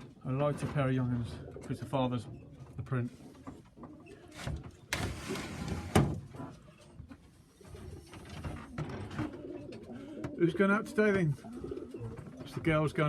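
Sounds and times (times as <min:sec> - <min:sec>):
pigeons cooing: 0:00.0 - 0:04.5, 0:07.4 - 0:13.0.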